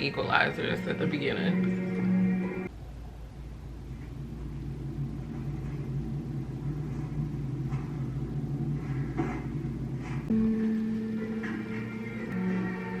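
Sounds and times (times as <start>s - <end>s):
held musical tone: 0.0s - 2.7s, 10.3s - 13.0s
film soundtrack rumble: 0.0s - 13.0s.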